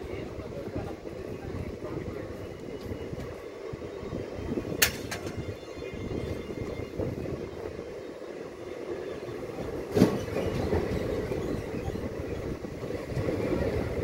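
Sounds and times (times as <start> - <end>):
train wheels clattering on track: 4.6 - 5.5, 9.5 - 13.4
sharp metallic clank: 4.8 - 5.4.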